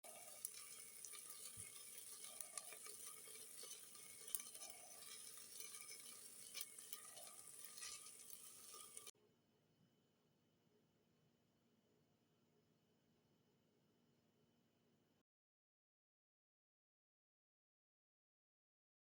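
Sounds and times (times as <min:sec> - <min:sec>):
food sizzling in oil: 0:00.0 - 0:09.1
light stirring strokes: 0:00.0 - 0:09.1.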